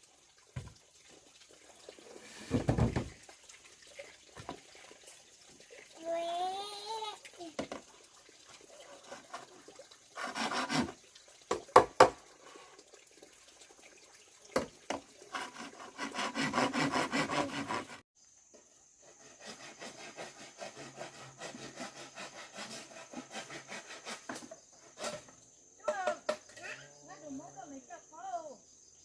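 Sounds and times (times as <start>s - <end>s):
rasping sawing strokes: 9.0s - 11.0s, 15.3s - 18.0s, 19.0s - 25.2s
sharp knocks on wood: 11.5s - 12.2s.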